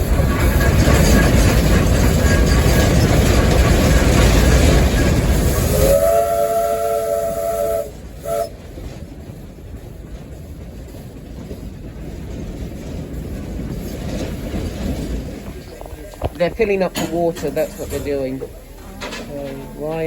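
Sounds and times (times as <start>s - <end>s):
steam locomotive hiss and rumble: 0.0s - 20.0s
steam whistle blast: 5.7s - 8.5s.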